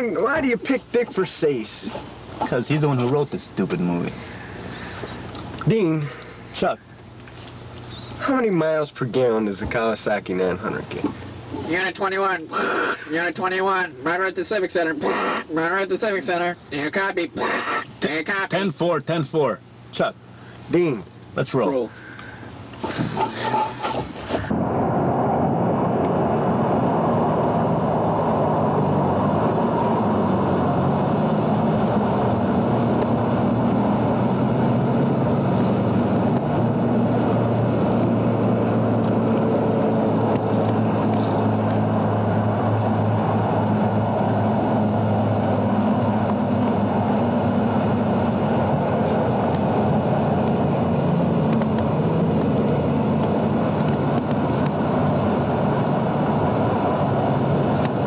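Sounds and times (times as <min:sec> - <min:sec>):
car engine running: 0:25.6 - 0:58.0.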